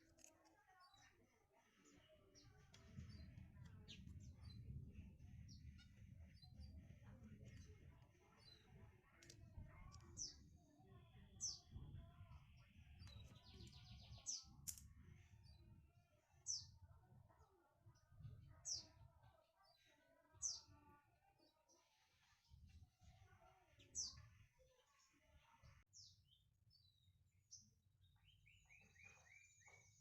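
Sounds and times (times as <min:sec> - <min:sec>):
bird chirping: 0:26.0 - 0:30.0.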